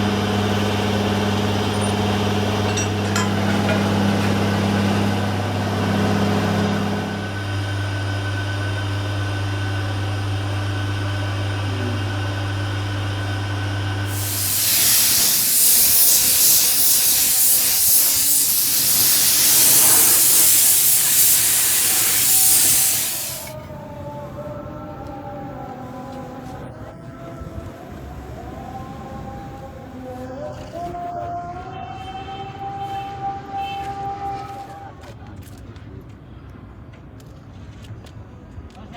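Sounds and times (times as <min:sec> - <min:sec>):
steady low hum: 0:00.0 - 0:23.5
spray paint hissing: 0:14.1 - 0:23.6.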